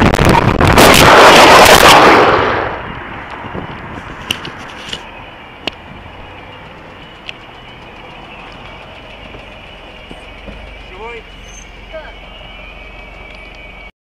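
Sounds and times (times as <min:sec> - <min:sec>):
wind rush on microphone: 0:00.0 - 0:05.0
vehicle noise: 0:00.0 - 0:14.0
sharp clicks: 0:06.4 - 0:10.9.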